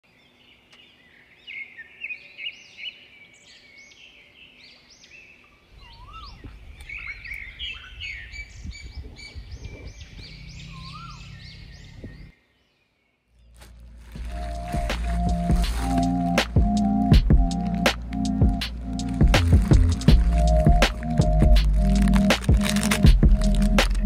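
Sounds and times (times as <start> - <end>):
birds chirping: 0.0 - 24.0
low rumble: 13.7 - 24.0.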